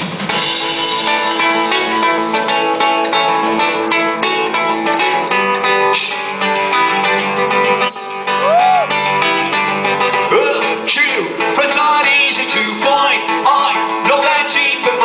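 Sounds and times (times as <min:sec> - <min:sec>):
live band playing: 0:00.0 - 0:15.0
acoustic guitar strumming: 0:00.2 - 0:15.0.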